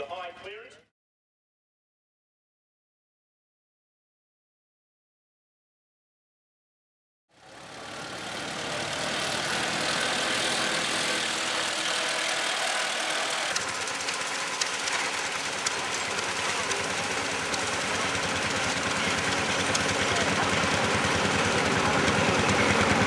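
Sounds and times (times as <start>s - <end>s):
tractor engine running: 7.4s - 23.0s.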